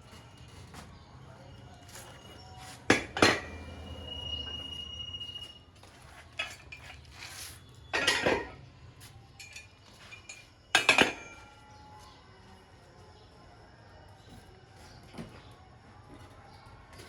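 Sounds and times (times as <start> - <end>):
metal tools clanking: 7.8 - 8.6.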